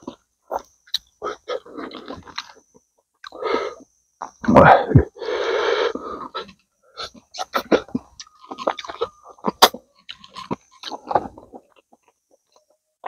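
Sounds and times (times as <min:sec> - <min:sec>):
wet smacking clicks and crunches: 0:00.0 - 0:03.4, 0:06.5 - 0:12.8
man chewing meat off bones: 0:00.0 - 0:12.9.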